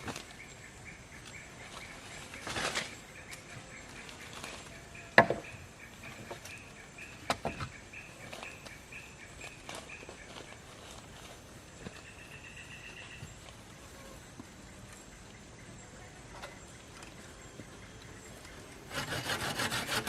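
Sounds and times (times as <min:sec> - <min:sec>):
sharp wooden knocks: 0:05.2 - 0:05.6, 0:07.2 - 0:07.7.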